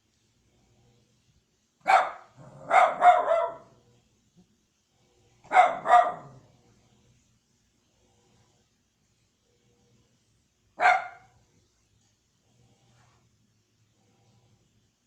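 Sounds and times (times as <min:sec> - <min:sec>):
dog barking: 0:01.8 - 0:03.8, 0:05.5 - 0:06.5, 0:10.8 - 0:11.4.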